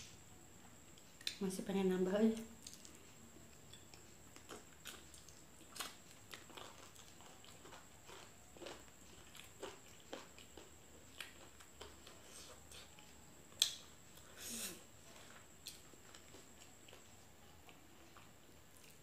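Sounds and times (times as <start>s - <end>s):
chewing smacks and clicks: 2.6s - 13.8s.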